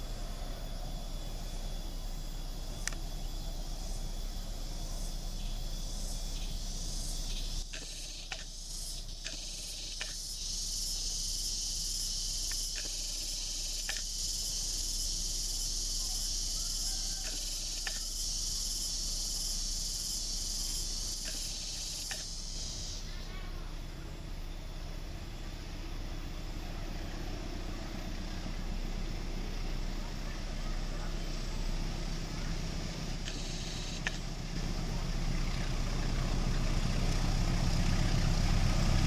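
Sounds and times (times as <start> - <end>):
diesel train rumble: 0.0 - 7.8, 18.2 - 39.0
insect chorus buzzing: 0.0 - 39.0
sharp clicks: 2.8 - 3.0, 7.7 - 8.6, 9.2 - 10.2, 12.5 - 13.0, 13.8 - 14.1, 21.2 - 22.4, 33.2 - 34.2.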